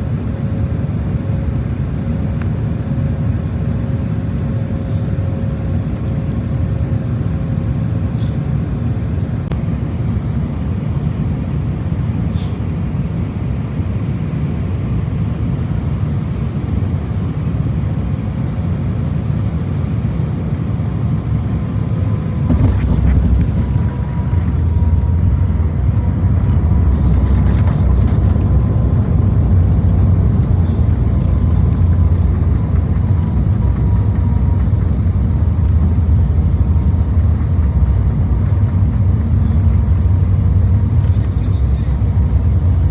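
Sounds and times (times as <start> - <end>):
aircraft cabin engine rumble: 0.0 - 42.9
landing gear jolt: 22.4 - 24.9.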